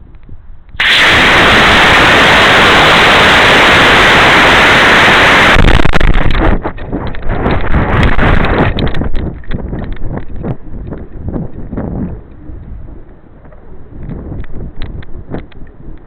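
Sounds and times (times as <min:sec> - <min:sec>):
wind buffeting microphone: 0:00.0 - 0:16.0
loud rushing hiss: 0:00.8 - 0:06.3.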